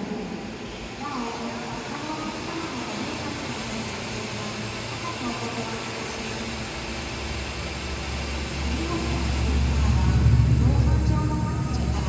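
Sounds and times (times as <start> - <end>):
room hum: 7.5 - 12.0.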